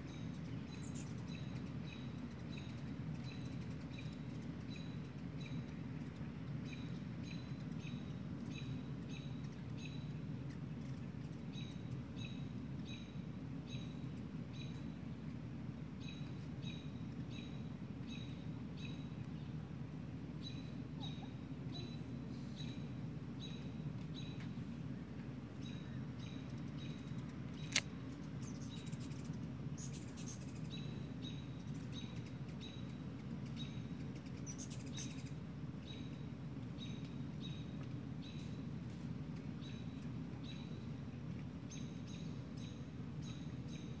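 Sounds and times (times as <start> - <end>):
bird chirping: 0.0 - 15.0, 16.0 - 19.6, 20.4 - 24.6, 25.6 - 38.6, 39.4 - 40.9, 41.7 - 44.0
low background rumble: 0.0 - 44.0
sharp click: 27.6 - 27.9.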